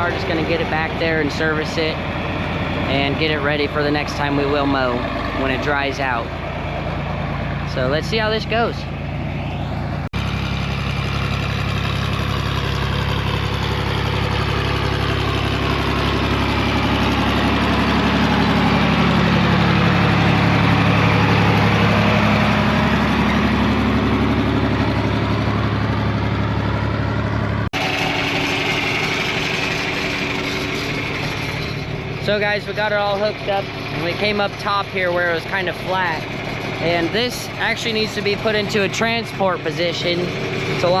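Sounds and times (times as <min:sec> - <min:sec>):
tractor engine running: 0:00.0 - 0:41.0.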